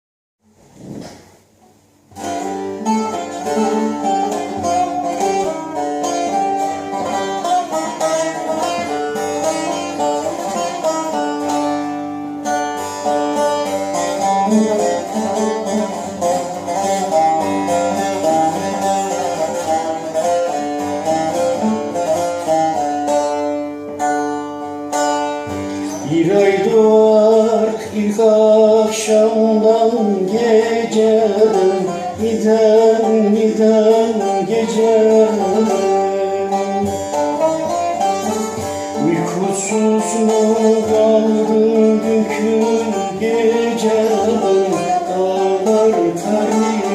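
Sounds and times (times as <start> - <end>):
plucked string instruments: 0.5 - 46.9
person singing: 25.9 - 46.9.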